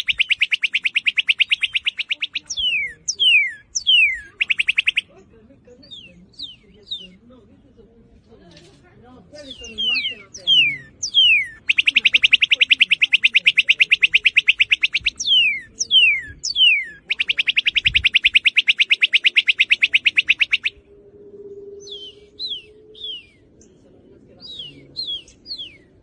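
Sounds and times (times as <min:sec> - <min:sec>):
bird singing trills and whistles: 0:00.0 - 0:07.3, 0:09.4 - 0:26.0.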